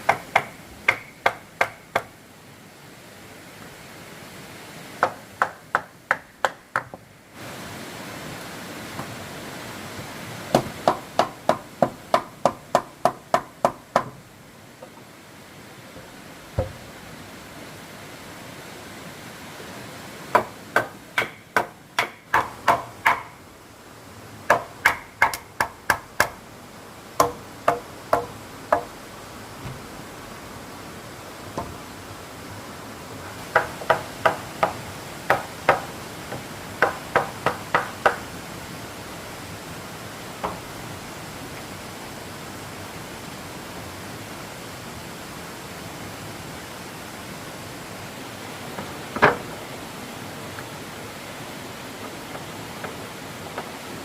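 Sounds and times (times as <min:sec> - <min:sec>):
hammer striking wood: 0:00.0 - 0:02.1, 0:05.0 - 0:07.0, 0:10.5 - 0:14.2, 0:16.6 - 0:16.8, 0:20.3 - 0:23.4, 0:24.5 - 0:26.4, 0:27.2 - 0:28.9, 0:33.5 - 0:38.2.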